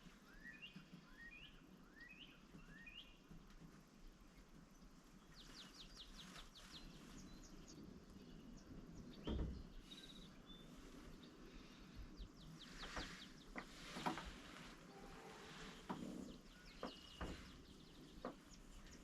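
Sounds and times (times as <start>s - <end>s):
faint outdoor ambience: 0.0s - 19.0s
small birds chirping: 0.0s - 19.0s.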